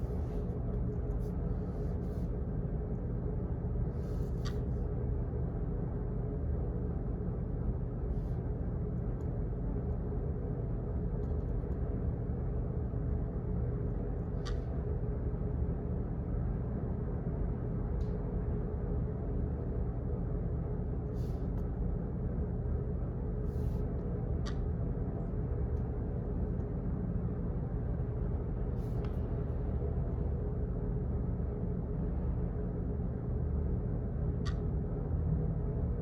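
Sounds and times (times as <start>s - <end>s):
faint hum: 0.0s - 36.0s.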